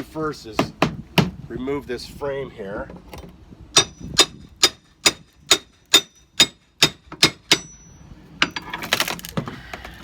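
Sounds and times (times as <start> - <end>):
hammer striking metal crowbar: 3.8 - 8.7.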